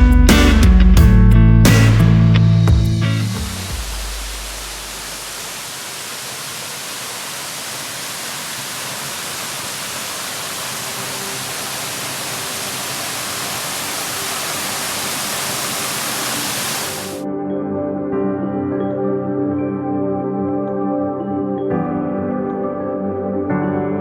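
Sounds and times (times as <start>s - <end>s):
waterfall rushing: 3.2s - 17.2s.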